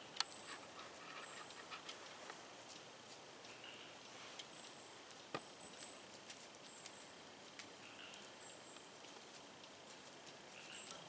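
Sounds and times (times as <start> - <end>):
faint high bird calls: 0.2 - 2.1, 3.4 - 7.1, 7.8 - 9.0, 10.5 - 11.0
light ticks: 1.4 - 11.0.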